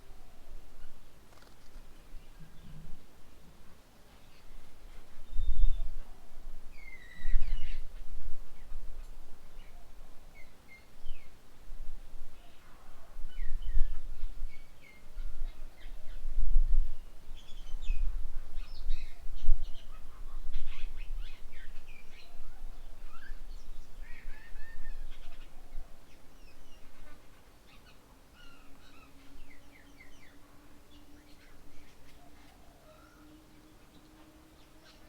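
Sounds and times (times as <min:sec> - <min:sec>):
birds calling and chattering: 0:00.3 - 0:03.0, 0:17.4 - 0:35.0.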